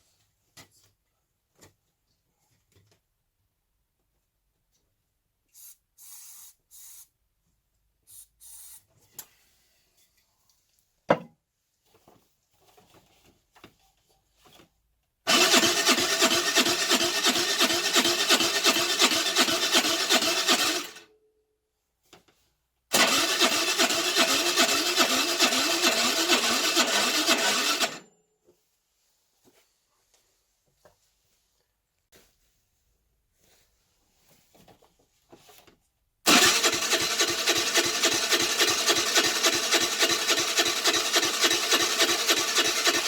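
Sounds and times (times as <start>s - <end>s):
moped engine cranking on starter: 15.3s - 21.0s, 22.9s - 28.1s, 36.3s - 43.0s.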